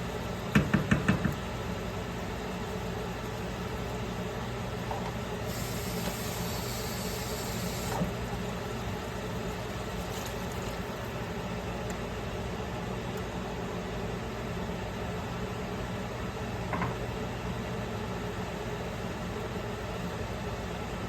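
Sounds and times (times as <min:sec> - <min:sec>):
steady machine hum: 0:00.0 - 0:16.2
hiss: 0:05.5 - 0:08.1.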